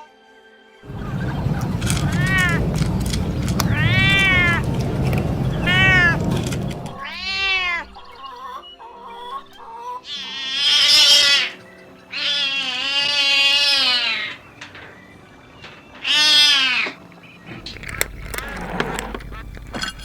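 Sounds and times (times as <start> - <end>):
kitten meowing: 2.0 - 2.6, 3.6 - 4.7, 5.5 - 6.2, 7.0 - 8.0, 10.1 - 14.4, 16.0 - 17.0.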